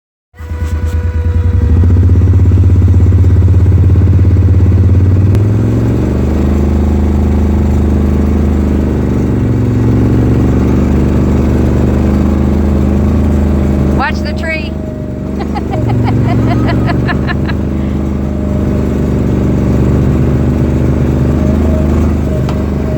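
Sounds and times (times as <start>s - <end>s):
vehicle engine running: 0.4s - 22.9s.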